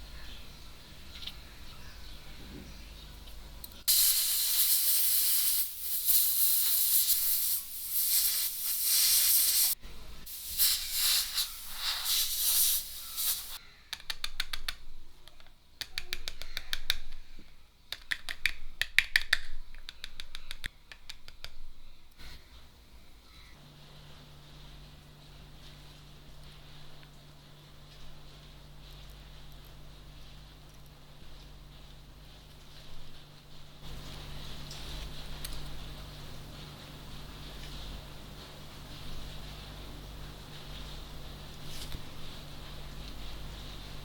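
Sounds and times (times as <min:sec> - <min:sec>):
loud hiss of spray: 0:03.9 - 0:13.6.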